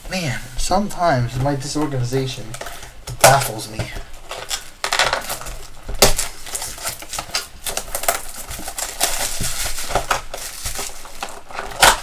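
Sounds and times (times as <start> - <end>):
rustling: 0.0 - 12.0.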